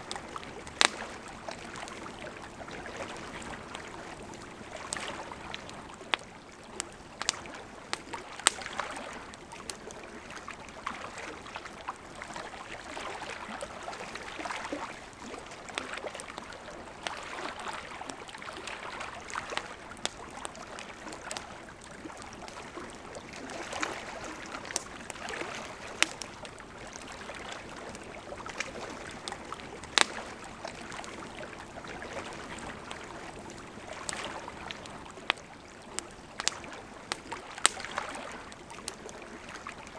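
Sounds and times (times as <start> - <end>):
wood fire crackling: 0.0 - 10.4, 14.3 - 39.8
sharp pops of fire: 36.4 - 38.0.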